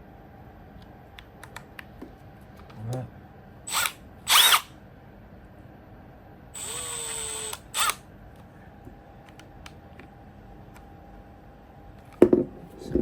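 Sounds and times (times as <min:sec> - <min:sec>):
power drill spinning: 0:03.7 - 0:04.7, 0:06.6 - 0:08.0.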